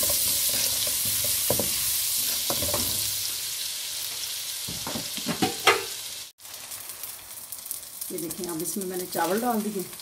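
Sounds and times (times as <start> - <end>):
metal ladle scraping and knocking wok: 0.0 - 3.1
oil sizzling in wok: 0.0 - 10.0.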